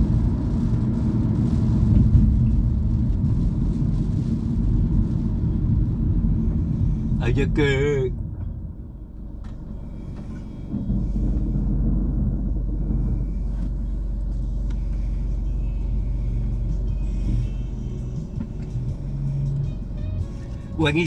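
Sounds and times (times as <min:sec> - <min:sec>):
car engine and road rumble: 0:00.0 - 0:21.0
music playing: 0:14.5 - 0:21.0.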